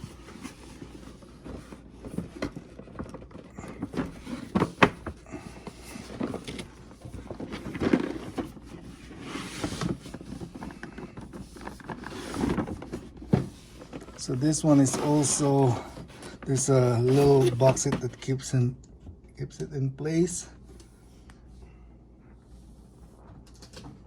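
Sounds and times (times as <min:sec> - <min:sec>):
packaging rustling and scraping: 0:00.0 - 0:18.5.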